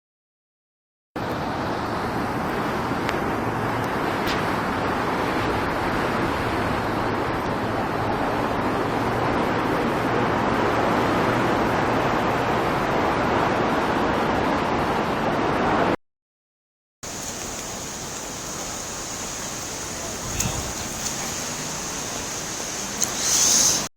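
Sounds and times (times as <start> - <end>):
floodwater rushing: 17.0 - 23.9
faint high hiss: 17.1 - 23.9.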